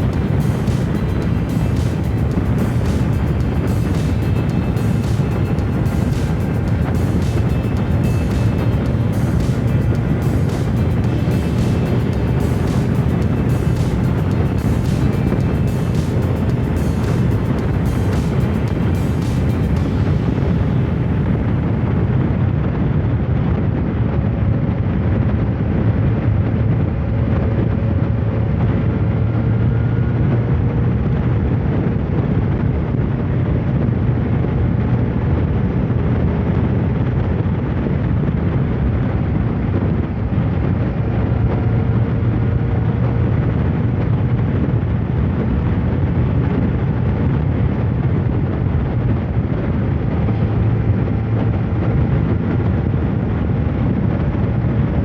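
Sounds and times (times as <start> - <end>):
even rushing noise: 0.0 - 22.4
motorcycle engine droning: 0.0 - 22.4.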